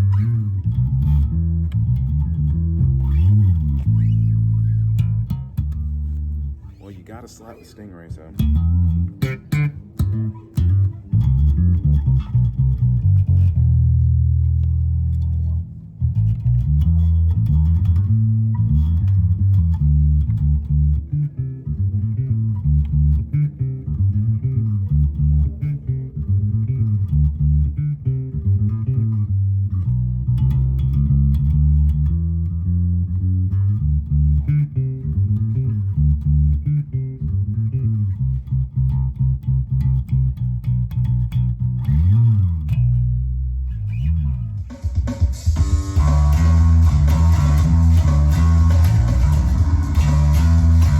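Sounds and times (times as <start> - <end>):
slap electric bass: 0.0 - 50.9.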